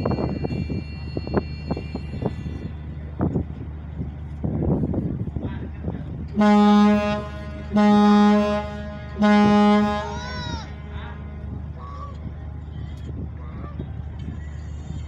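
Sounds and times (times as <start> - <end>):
low hum of ship engines: 0.0 - 15.0
ferry horn blasts: 6.4 - 11.6.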